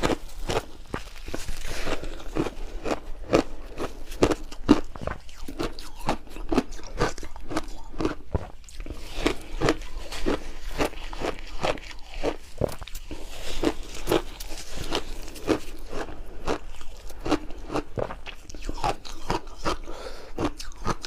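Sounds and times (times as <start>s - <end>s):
ice being chewed: 0.0s - 21.0s.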